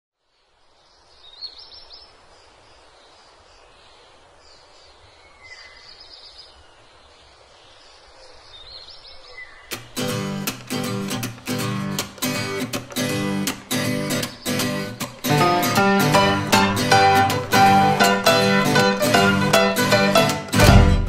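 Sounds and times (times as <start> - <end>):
soft steady hiss: 0.2 - 10.9
acoustic guitar strumming: 9.7 - 21.0.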